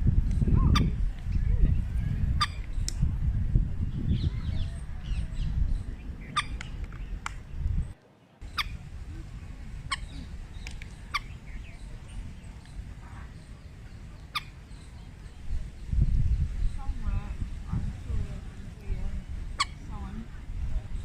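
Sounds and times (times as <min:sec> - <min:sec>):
low outdoor rumble: 0:00.0 - 0:21.0
high bird chirps: 0:03.8 - 0:08.8, 0:09.8 - 0:17.4.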